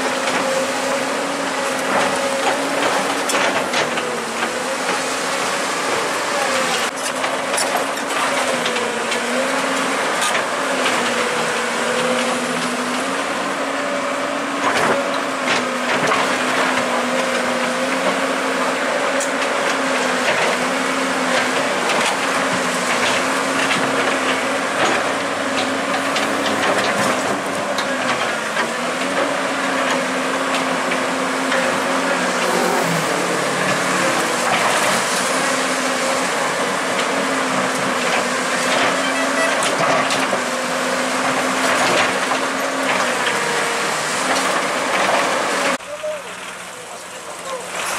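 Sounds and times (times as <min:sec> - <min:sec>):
heavy machinery engine running: 0:00.0 - 0:47.9.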